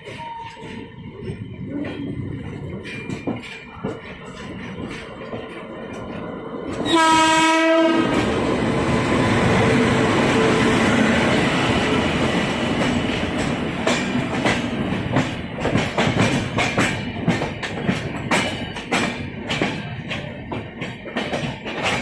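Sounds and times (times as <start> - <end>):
wheels clacking over rail joints: 0.0 - 7.3, 12.2 - 22.0
passenger train rushing on rails: 0.0 - 22.0.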